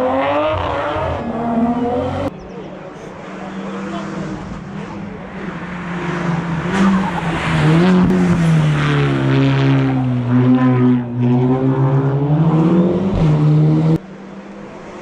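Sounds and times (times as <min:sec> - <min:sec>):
race car engine approaching: 0:00.0 - 0:15.0.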